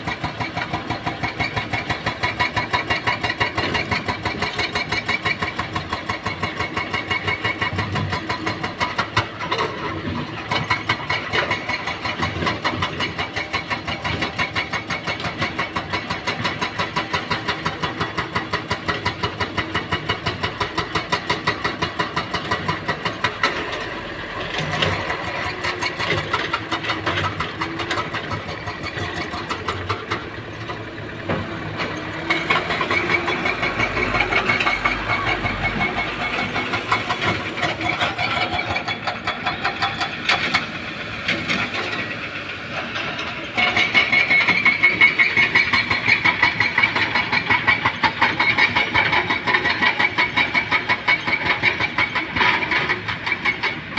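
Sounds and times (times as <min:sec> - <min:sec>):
excavator diesel engine throbbing: 0:00.0 - 0:53.9.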